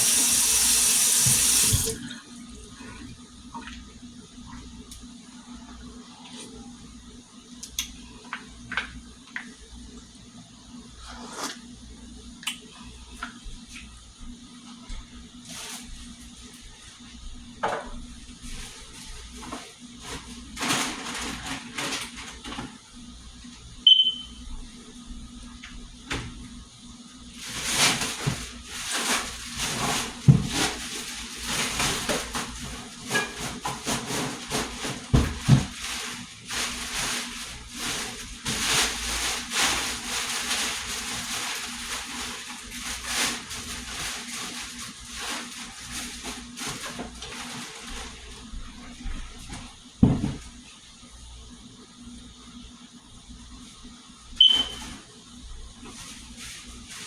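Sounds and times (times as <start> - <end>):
tap water running into sink: 0.0 - 2.0.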